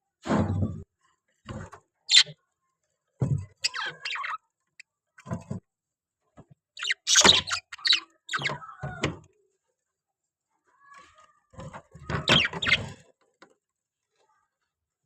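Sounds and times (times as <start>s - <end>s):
parrot calling and chattering: 2.1s - 2.4s, 3.6s - 4.4s, 6.8s - 8.8s, 12.2s - 12.8s.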